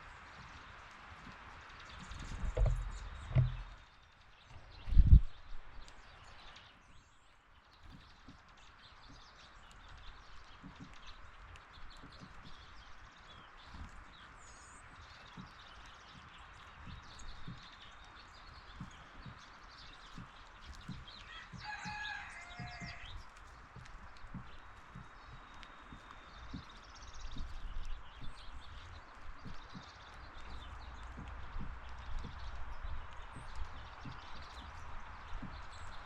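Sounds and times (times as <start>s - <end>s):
small birds chirping: 0.0s - 36.0s
soft low knocks: 1.9s - 3.9s, 15.2s - 36.0s
distant rooster crowing: 21.2s - 23.2s.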